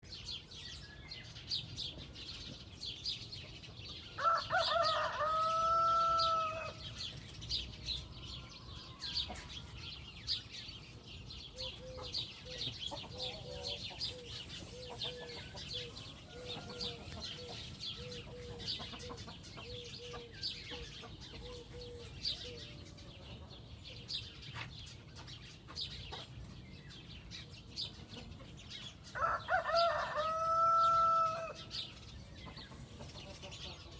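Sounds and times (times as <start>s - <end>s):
rooster crowing: 4.2s - 6.8s, 29.2s - 31.6s
hen clucking: 11.6s - 23.5s, 32.4s - 33.9s.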